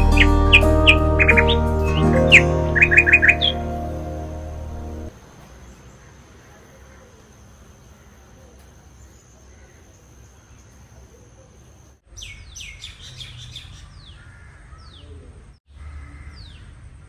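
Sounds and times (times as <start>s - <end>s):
birds chirping: 0.0s - 10.9s.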